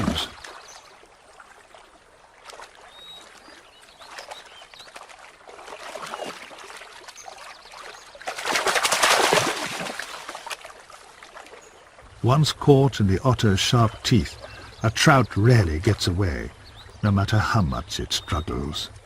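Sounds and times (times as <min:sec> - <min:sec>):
stream water trickling: 0:00.0 - 0:19.0
faint bird chirps: 0:02.8 - 0:05.1, 0:13.2 - 0:19.0
loud splashing: 0:08.2 - 0:10.7.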